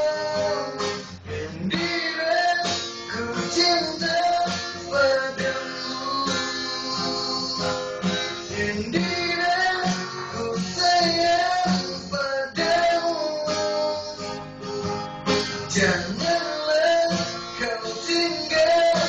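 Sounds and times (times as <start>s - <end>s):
person singing: 0.0s - 19.0s
strummed acoustic guitar: 0.0s - 19.0s.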